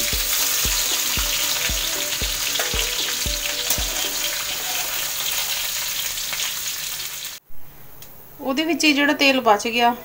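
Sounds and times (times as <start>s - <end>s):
metal spatula knocking on pan: 0.0s - 4.6s
vegetables sizzling in oil: 0.0s - 7.4s.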